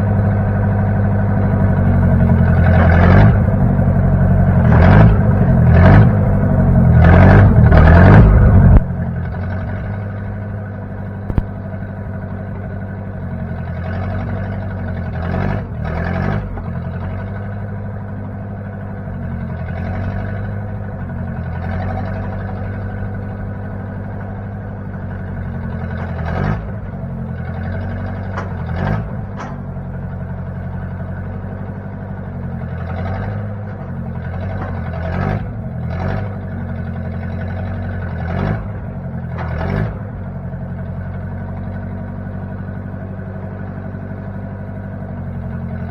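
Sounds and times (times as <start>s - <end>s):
backhoe engine running: 0.0s - 45.9s
brief clicks: 11.3s - 11.5s.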